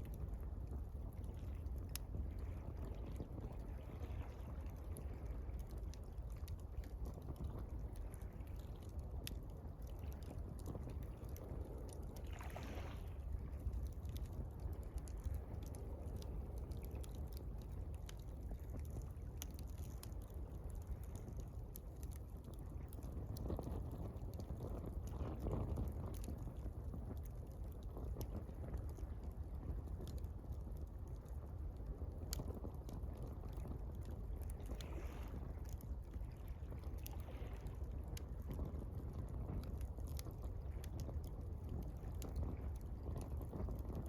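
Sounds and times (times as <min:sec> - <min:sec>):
campfire crackling: 0:00.0 - 0:44.0
low steady rumble: 0:00.0 - 0:44.0
water lapping: 0:11.2 - 0:16.1.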